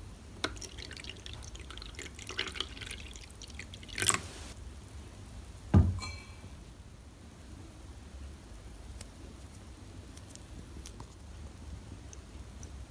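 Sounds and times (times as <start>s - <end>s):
water dripping: 0.4s - 4.6s
loud thud: 5.7s - 6.0s
metallic ring: 5.9s - 6.5s.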